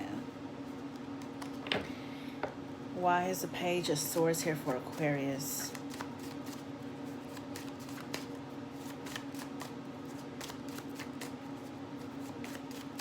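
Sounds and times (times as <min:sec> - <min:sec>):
cards being shuffled by hand: 0:00.8 - 0:01.7, 0:05.6 - 0:13.0.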